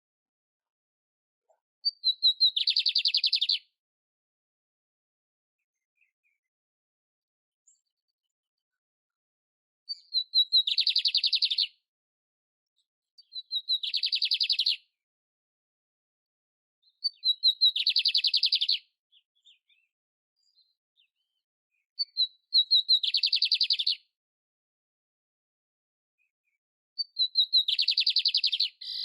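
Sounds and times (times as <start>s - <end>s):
canary singing with trill: 1.8s - 3.7s, 9.9s - 11.8s, 13.2s - 14.9s, 16.8s - 19.9s, 22.0s - 24.1s, 27.0s - 29.0s.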